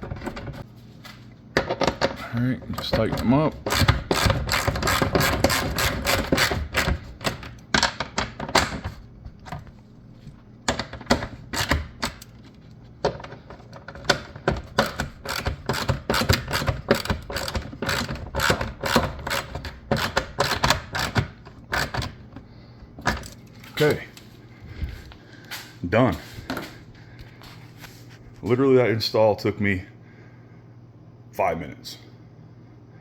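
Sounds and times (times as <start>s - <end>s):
hand ratchet clicking: 3.2s - 7.4s, 10.7s - 12.3s, 14.1s - 22.2s.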